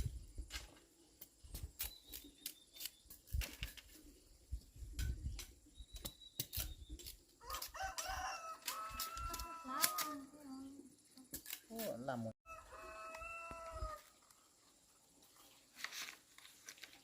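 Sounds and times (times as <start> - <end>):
rooster crowing: 7.4 - 10.0, 12.5 - 14.2.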